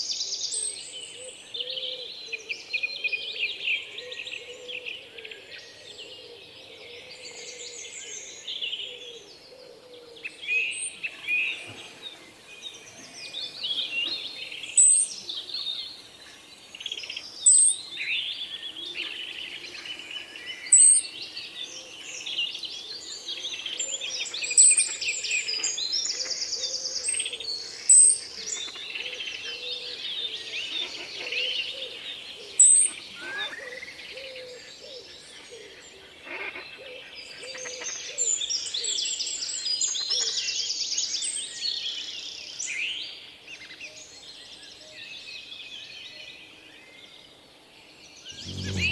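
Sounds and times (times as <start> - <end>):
songbirds singing and calling: 0.0 - 48.9
buzzy bird trill: 48.3 - 48.9
loud sharp high bird note: 48.4 - 48.9.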